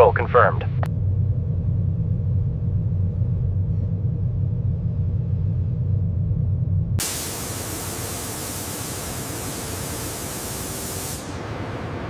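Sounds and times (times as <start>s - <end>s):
low rumble: 0.0s - 7.0s
spray gun hissing: 7.0s - 11.4s.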